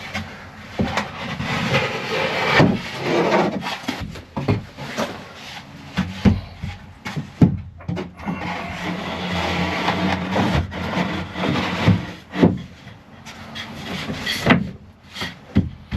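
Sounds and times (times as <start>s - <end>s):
wood scraping against wood: 0.0s - 15.9s
wooden boards knocking: 2.5s - 5.2s, 5.9s - 9.0s, 13.6s - 15.9s.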